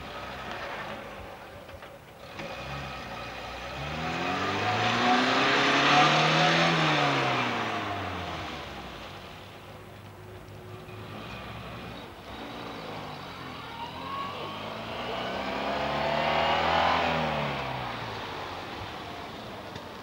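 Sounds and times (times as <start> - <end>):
car engine revving: 2.3 - 9.2, 10.8 - 20.0
car passing rushing noise: 14.2 - 20.0.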